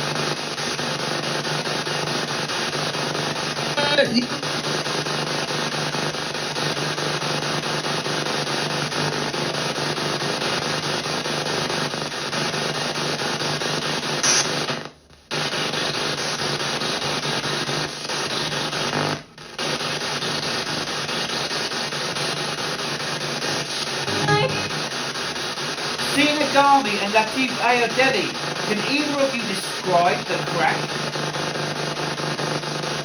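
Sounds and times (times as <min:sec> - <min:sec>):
radio static hiss: 0:03.5 - 0:05.4, 0:14.1 - 0:14.8, 0:22.9 - 0:33.0.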